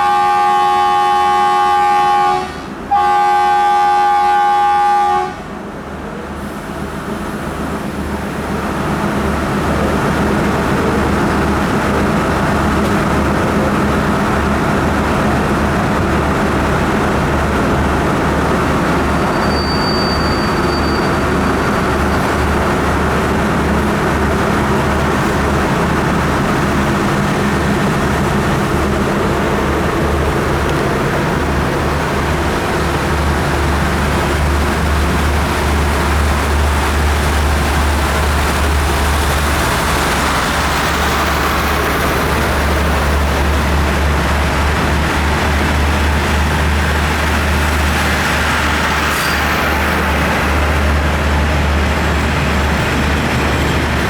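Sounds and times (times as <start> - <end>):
diesel locomotive horn: 0.0 - 5.7
departing train rumble: 0.0 - 54.0.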